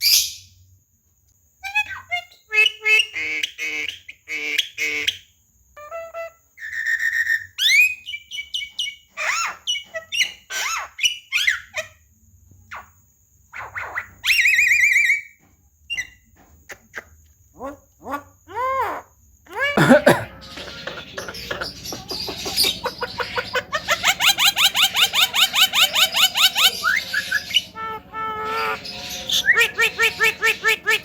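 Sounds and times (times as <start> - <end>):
bird whistles and rasping calls: 20.4 - 31.0.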